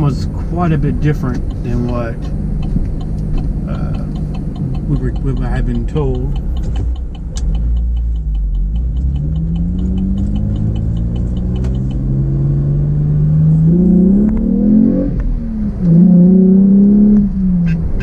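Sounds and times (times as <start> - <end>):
car engine accelerating: 0.0 - 18.0
steady high ticking: 0.1 - 12.8.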